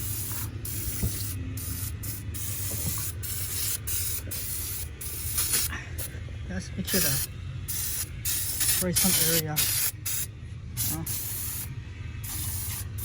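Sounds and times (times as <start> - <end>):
spray can hissing: 0.0 - 5.7, 6.9 - 13.0.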